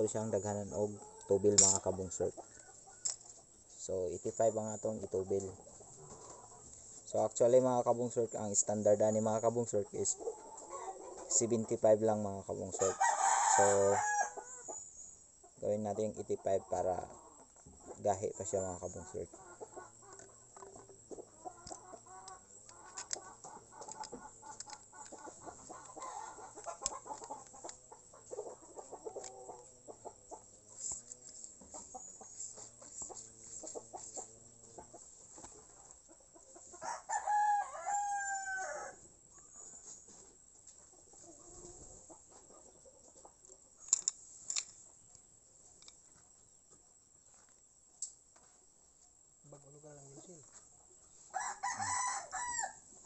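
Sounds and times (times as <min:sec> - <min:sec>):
rooster crowing: 0:12.8 - 0:14.7, 0:36.8 - 0:39.0, 0:51.3 - 0:52.9.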